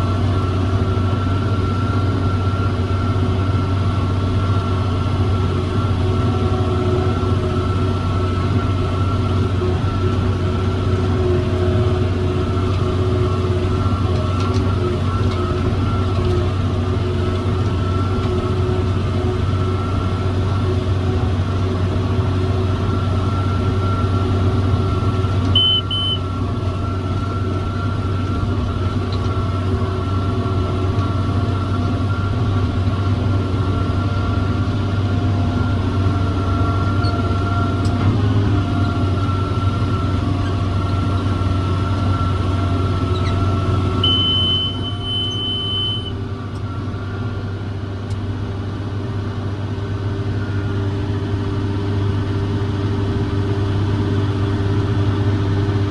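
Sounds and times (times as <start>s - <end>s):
tractor diesel engine under load: 0.0s - 55.9s
long electronic beep: 23.1s - 28.5s, 43.2s - 47.1s
short double electronic beep: 25.5s - 26.3s, 44.0s - 46.2s.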